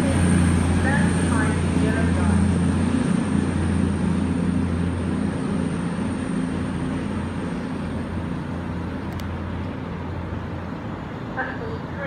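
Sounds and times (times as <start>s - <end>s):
low drone of a train: 0.0s - 12.0s
faint click: 9.1s - 9.3s.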